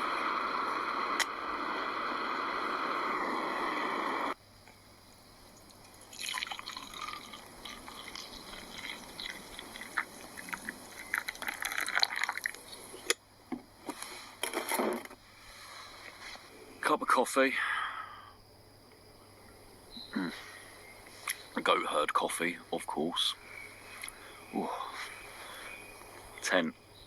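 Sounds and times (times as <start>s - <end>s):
hot water pouring into cup: 0.0s - 4.4s, 5.6s - 12.7s
steady rushing noise: 0.0s - 4.4s.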